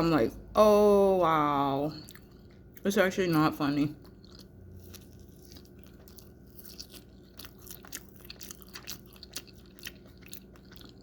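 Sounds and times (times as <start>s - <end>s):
faint steady hum: 0.0s - 11.0s
person chewing food: 1.9s - 2.8s, 3.9s - 11.0s.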